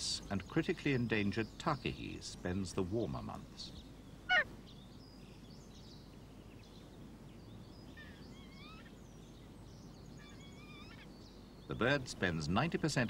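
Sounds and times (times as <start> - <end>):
birdsong chirps: 0.0 - 13.0
low steady background noise: 0.0 - 13.0
bird warbling call: 4.2 - 4.8, 7.8 - 9.0, 10.1 - 11.3.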